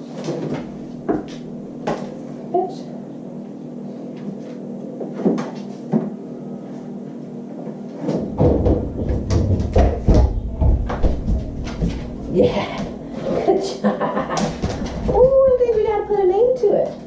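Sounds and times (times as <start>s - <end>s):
knocks and rattles: 8.2s - 12.2s.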